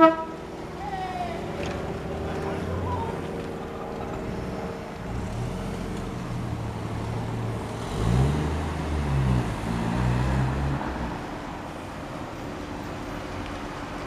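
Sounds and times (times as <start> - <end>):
car engine revving: 1.6 - 11.2.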